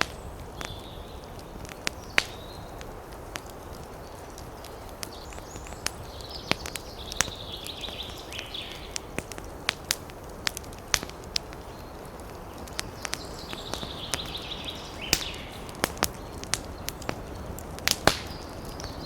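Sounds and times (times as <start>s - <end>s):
fire hissing: 0.0s - 19.0s
wood fire crackling: 0.0s - 19.0s.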